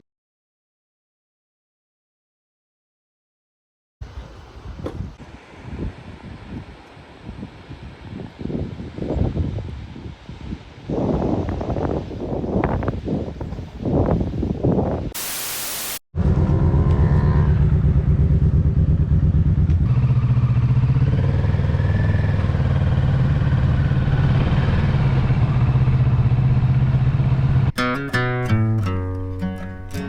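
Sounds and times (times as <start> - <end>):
hiss: 15.2 - 16.0
motorcycle engine running: 16.2 - 27.8.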